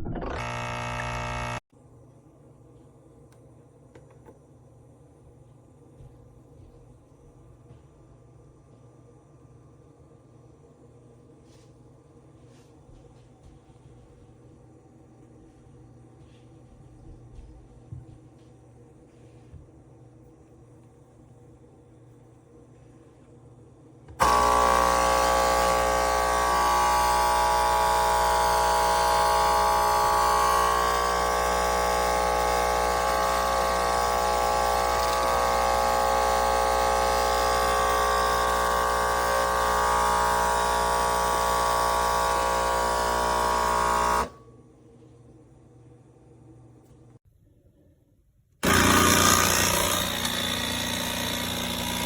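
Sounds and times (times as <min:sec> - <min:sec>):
coffee machine pump buzzing: 0:00.0 - 0:01.6, 0:24.1 - 0:44.4, 0:48.6 - 0:52.0.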